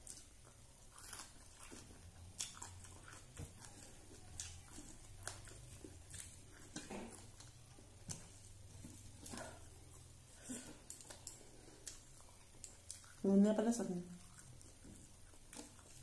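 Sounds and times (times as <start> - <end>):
person chewing with lip-smacks: 0.0 - 13.3, 13.9 - 16.0.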